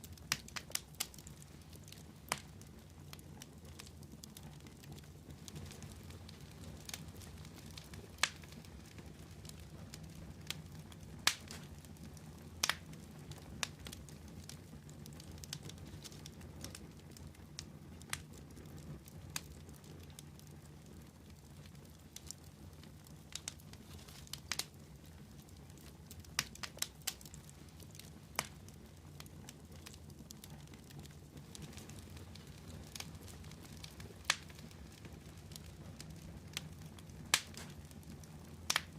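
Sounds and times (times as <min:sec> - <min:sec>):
low rumble of burning: 0:00.0 - 0:38.9
wood fire crackling and popping: 0:00.0 - 0:38.9.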